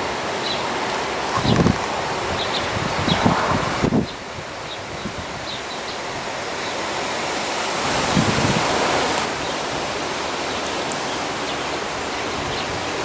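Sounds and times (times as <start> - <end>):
wind rushing: 0.0 - 5.5, 7.7 - 9.9
wind gust buffeting microphone: 0.0 - 10.6, 11.4 - 13.0.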